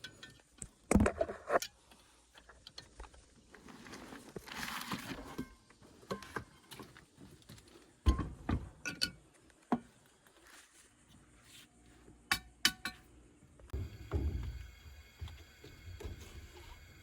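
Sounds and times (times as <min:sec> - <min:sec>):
thump: 0:13.8 - 0:14.6.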